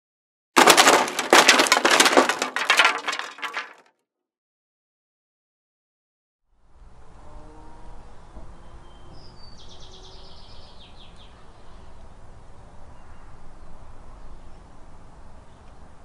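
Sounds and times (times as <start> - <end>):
songbird trill: 8.5 - 11.9.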